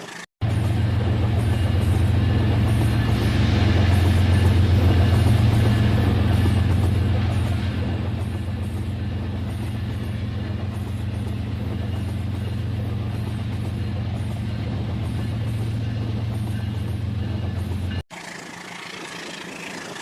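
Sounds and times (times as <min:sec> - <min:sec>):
toy train motor hum: 0:18.1 - 0:20.0.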